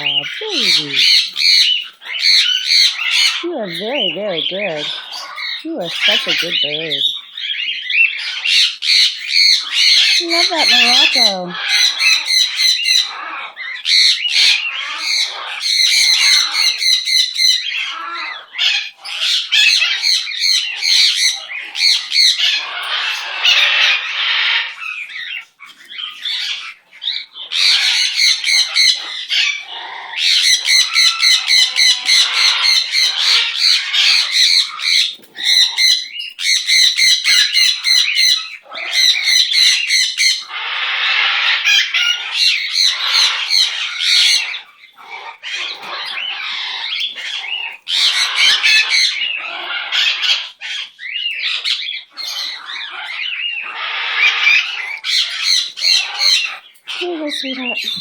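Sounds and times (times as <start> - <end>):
bird singing rapid repeated notes: 0.0 - 13.1, 54.6 - 58.0.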